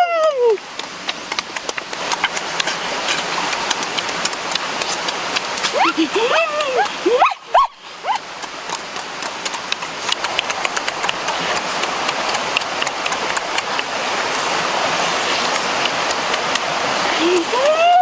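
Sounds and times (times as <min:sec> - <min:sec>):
stream rushing: 0:00.0 - 0:18.0
open-mouth chewing: 0:00.8 - 0:06.0, 0:08.1 - 0:13.9.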